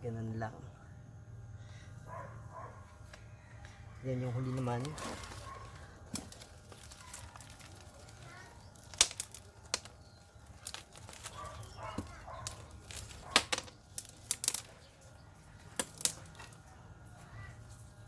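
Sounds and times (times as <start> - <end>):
clicks and knocks of pots: 6.1 - 14.8.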